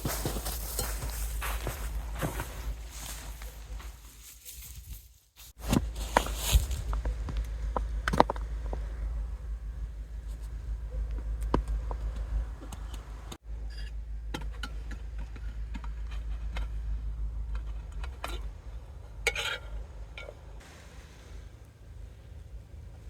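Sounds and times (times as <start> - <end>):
low steady rumble: 0.0 - 5.0, 5.6 - 23.0
loud crunch: 0.0 - 13.4.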